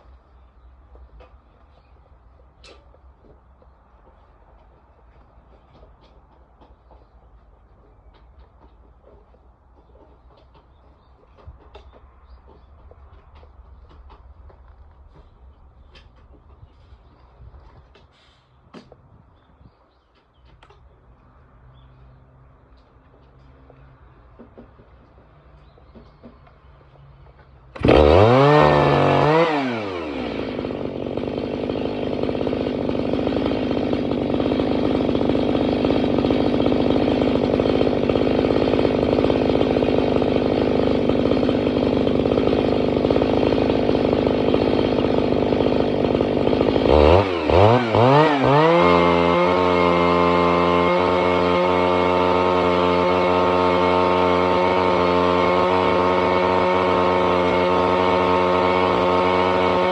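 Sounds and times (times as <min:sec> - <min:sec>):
engine cutter revving and idling: 0:27.7 - 0:59.9.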